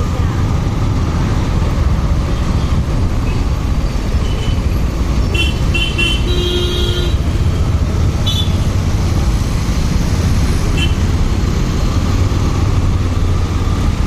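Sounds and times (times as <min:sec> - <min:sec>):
motorcycle engine rumble: 0:00.0 - 0:14.0
vehicle horn beeping: 0:05.3 - 0:07.2, 0:08.2 - 0:08.6.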